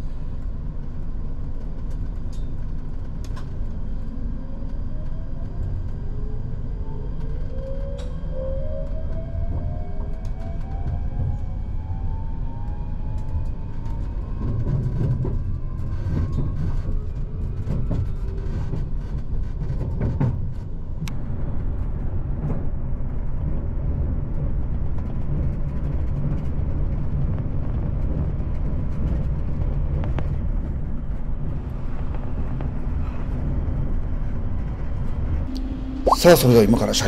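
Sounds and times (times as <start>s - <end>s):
wheels rumbling on rail: 0.0s - 37.0s
faint rising whine: 35.5s - 37.0s.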